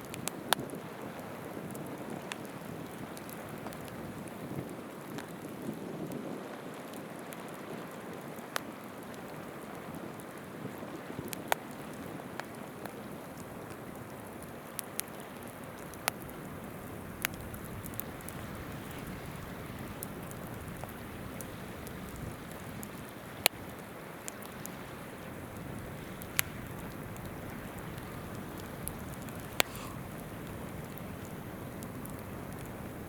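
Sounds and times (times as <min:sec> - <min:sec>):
campfire crackling and popping: 0:00.0 - 0:33.0
river water flowing: 0:26.0 - 0:33.0.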